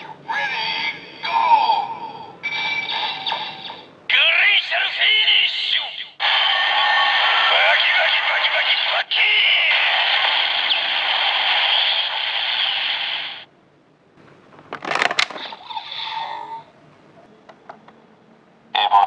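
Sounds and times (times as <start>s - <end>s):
toy speaker hissing effect: 9.2s - 13.5s.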